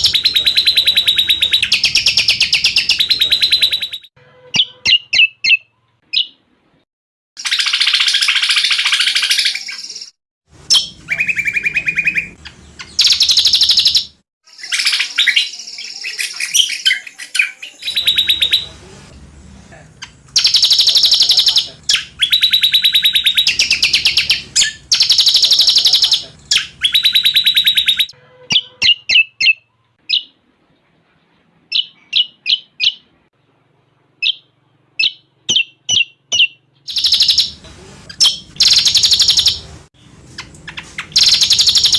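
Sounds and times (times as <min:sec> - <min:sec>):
sharp bird chirps: 0:07.4 - 0:18.7, 0:20.0 - 0:30.4, 0:34.2 - 0:37.6, 0:38.2 - 0:39.6, 0:40.4 - 0:41.9
bird song with rapid trills: 0:34.2 - 0:37.6, 0:40.3 - 0:41.9.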